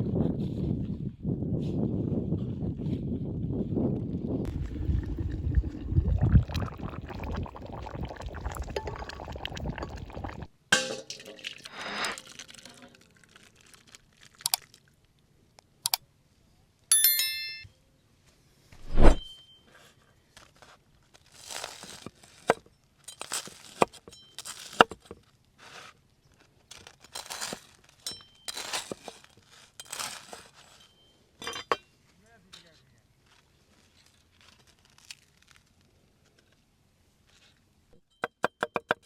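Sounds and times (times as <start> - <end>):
crunching and rustling: 12.2 - 15.1, 20.3 - 30.9, 32.0 - 37.6
dishware clinking: 31.4 - 31.8.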